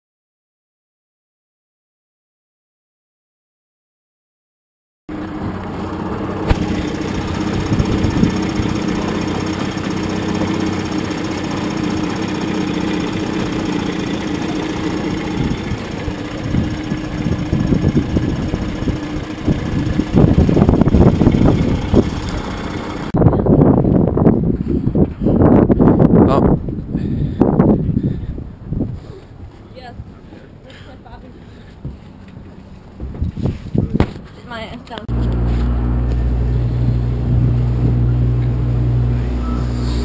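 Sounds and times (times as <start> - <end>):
boat motor idling: 5.1 - 23.2, 35.0 - 40.0.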